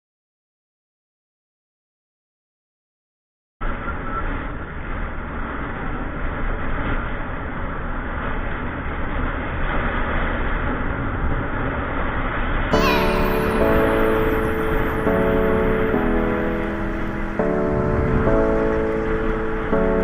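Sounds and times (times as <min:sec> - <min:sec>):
wind rush: 0:13.4 - 0:20.0.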